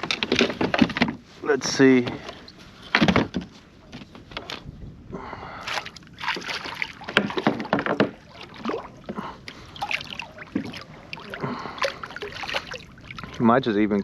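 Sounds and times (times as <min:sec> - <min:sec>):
knocks and rubs on kayak: 0:00.0 - 0:02.3, 0:02.9 - 0:04.7, 0:06.3 - 0:09.3
small water splashes: 0:05.6 - 0:13.7.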